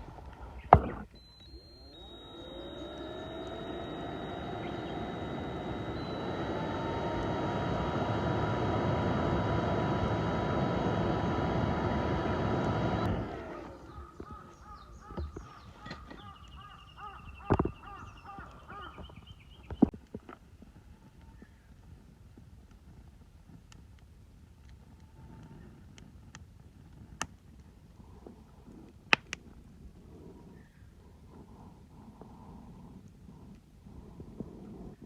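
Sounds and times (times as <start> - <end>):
mechanical running noise with tones: 0.0 - 19.8
short bird calls: 13.7 - 19.8.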